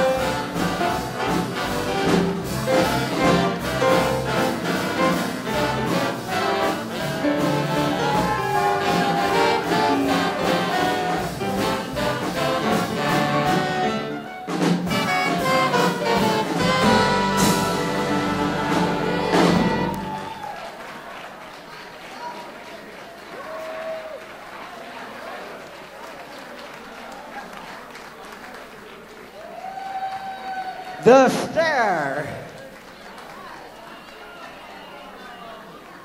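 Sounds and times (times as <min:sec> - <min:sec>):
big band jazz playing: 0:00.0 - 0:20.3
trumpets and trombones: 0:00.0 - 0:20.3.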